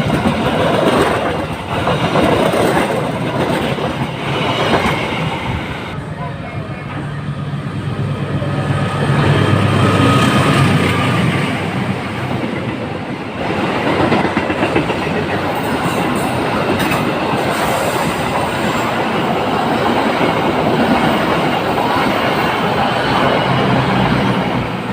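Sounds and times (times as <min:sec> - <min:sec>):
clickety-clack over rail joints: 0:00.0 - 0:05.3, 0:12.2 - 0:24.9
train wheels rushing on track: 0:00.0 - 0:24.9.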